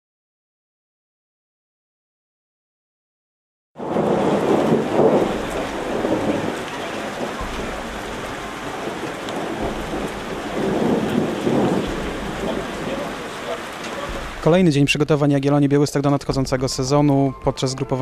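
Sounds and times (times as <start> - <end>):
rain falling: 3.8 - 18.0
low rumble: 3.9 - 14.9
rain drop ticks: 3.9 - 18.0.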